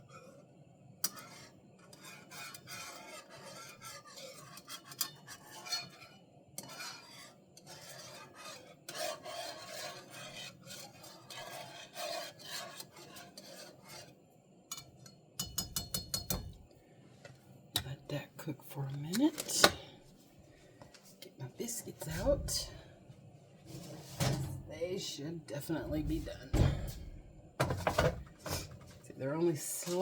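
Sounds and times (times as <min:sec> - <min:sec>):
utensil scraping a pot: 0:00.0 - 0:16.6, 0:27.6 - 0:30.0.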